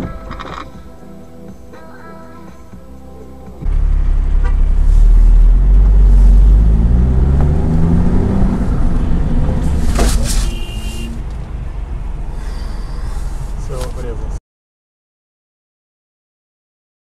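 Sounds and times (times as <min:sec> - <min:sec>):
car road and engine rumble: 0:03.0 - 0:14.4.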